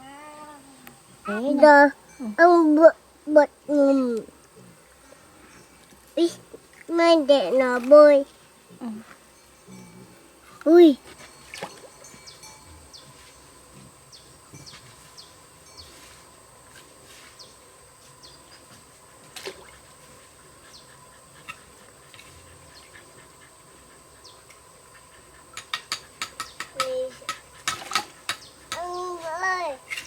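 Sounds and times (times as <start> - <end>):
birds chirping: 19.9 - 29.2.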